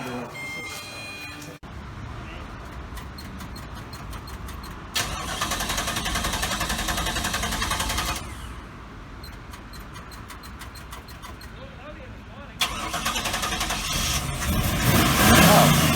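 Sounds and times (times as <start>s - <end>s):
car starter motor cranking: 2.5s - 11.9s, 12.6s - 15.9s.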